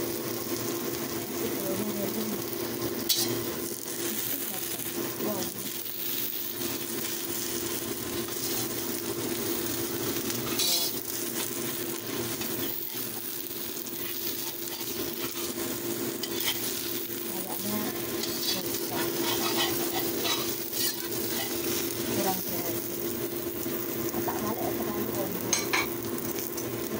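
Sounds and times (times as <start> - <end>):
omelette sizzling in hot oil: 0.0 - 26.9
metal spatula scraping pan: 3.1 - 3.4, 10.4 - 11.0, 14.3 - 15.6, 16.2 - 16.8, 18.2 - 21.9.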